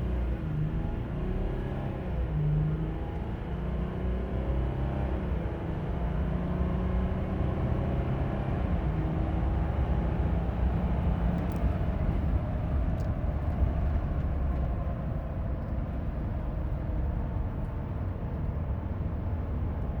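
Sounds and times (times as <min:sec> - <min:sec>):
road and wind noise: 0:00.0 - 0:20.0.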